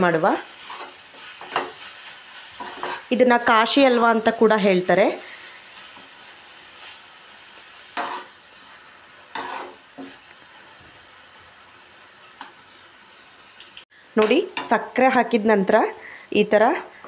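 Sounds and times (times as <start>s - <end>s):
food sizzling in a pan: 0.0s - 17.0s
metal spoon stirring: 9.3s - 10.1s.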